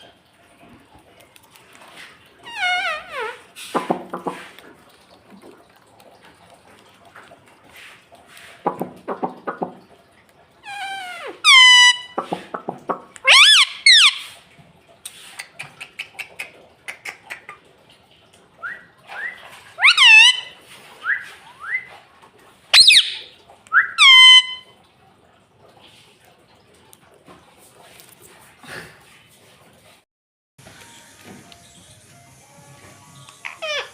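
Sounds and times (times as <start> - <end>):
parakeet shrill calls: 2.5 - 3.4, 10.7 - 12.2, 13.2 - 14.3, 19.8 - 20.6, 22.7 - 24.6, 33.4 - 33.9
parakeet rapid chattering: 13.2 - 14.3, 19.8 - 20.5, 22.8 - 23.2, 24.0 - 24.6.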